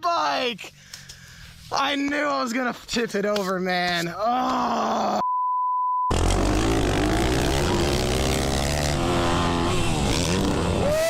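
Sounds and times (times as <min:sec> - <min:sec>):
censor bleep: 0:05.2 - 0:06.1
dirt bike engine revving: 0:06.1 - 0:11.0.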